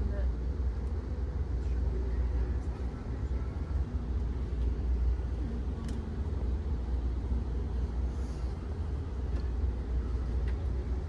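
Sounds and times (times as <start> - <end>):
train car interior rumble: 0.0 - 11.0
faint click: 5.8 - 6.1.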